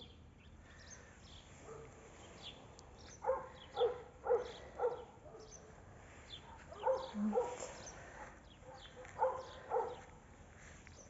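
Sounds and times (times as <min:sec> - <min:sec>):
dog barking: 0:01.6 - 0:02.0, 0:03.2 - 0:05.8, 0:06.4 - 0:10.1.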